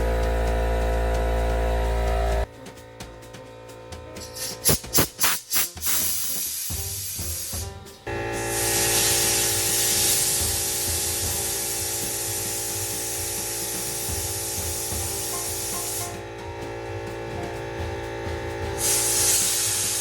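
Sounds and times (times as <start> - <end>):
background music: 0.0 - 20.0
compressed air hissing from pipe: 4.1 - 20.0.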